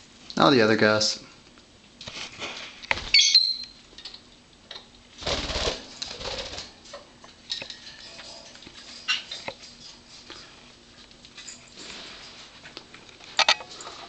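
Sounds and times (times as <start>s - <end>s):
faint high bird chirps: 3.1s - 3.8s.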